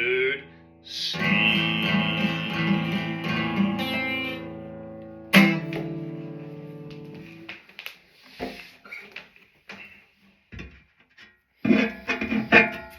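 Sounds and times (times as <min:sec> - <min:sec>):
guitar chord strummed: 0:01.1 - 0:07.5.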